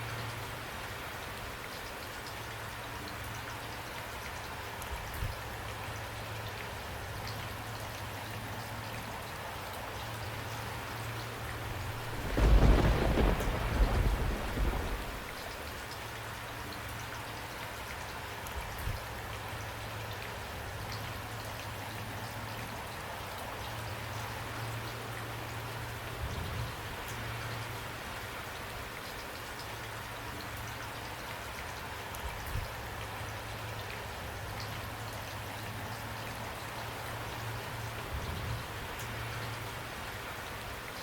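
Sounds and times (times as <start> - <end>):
steady rain falling: 0.0 - 41.0
low thumps: 11.6 - 15.5.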